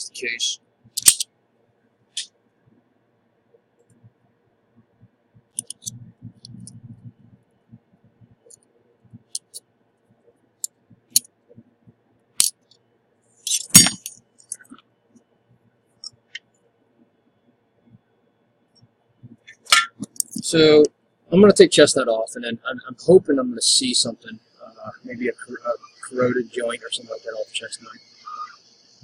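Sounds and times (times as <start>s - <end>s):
low rumble of handling: 4.8s - 9.4s.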